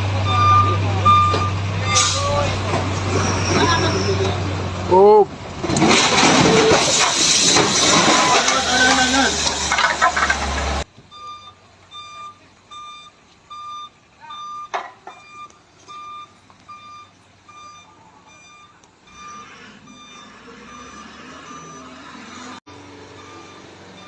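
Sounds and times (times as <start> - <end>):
truck reversing beeper: 0.0 - 4.6, 11.1 - 24.0
engine and road rumble: 0.0 - 24.0.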